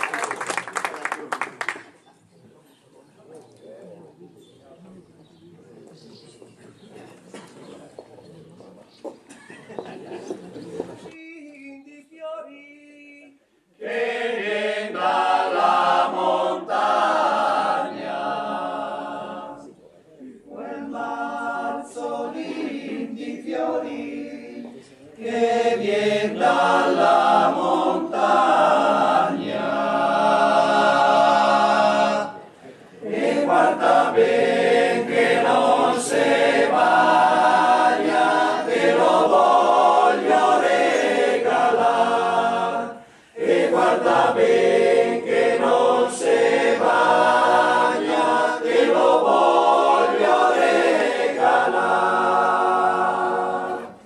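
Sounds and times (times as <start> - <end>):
male choir singing a cappella: 11.0 - 19.8, 20.4 - 54.0.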